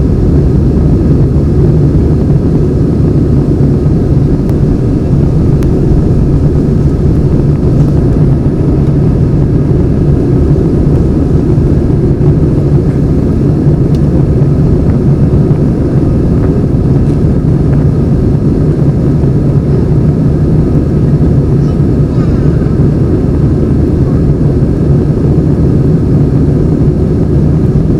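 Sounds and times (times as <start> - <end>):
rushing air: 0.0 - 23.6
jet engine drone in cabin: 0.0 - 27.9.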